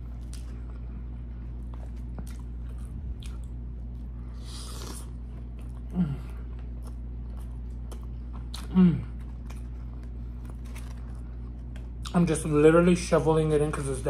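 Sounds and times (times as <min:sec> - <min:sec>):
man chewing: 0:00.0 - 0:12.2
steady low hum: 0:00.0 - 0:14.0
man humming mm: 0:05.9 - 0:06.4, 0:08.6 - 0:09.2.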